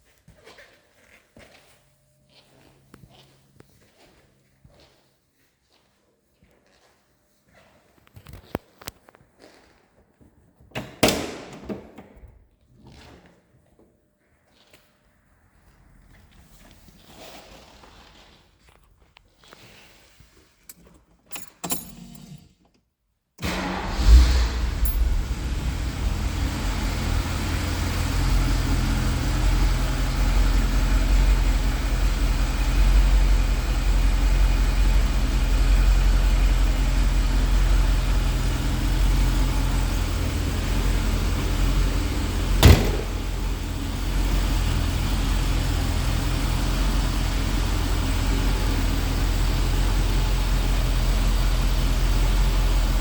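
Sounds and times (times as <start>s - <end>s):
car engine running: 23.4s - 53.0s.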